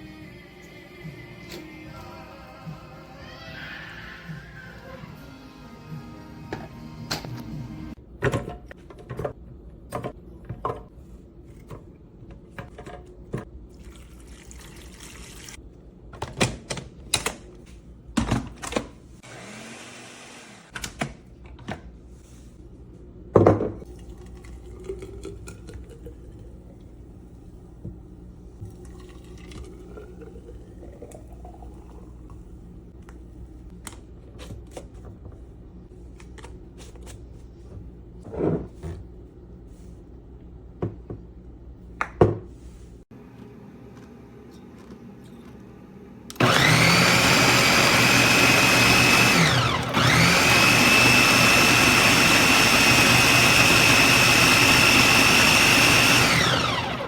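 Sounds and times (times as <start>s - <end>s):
liquid pouring: 13.7s - 15.6s, 23.9s - 26.9s, 28.6s - 32.4s.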